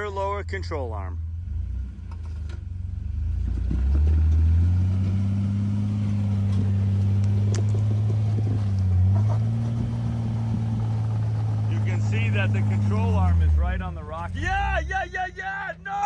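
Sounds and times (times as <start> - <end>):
engine revving under load: 1.3 - 15.1
faint knocks from rock and chassis: 3.4 - 4.6, 6.4 - 10.0.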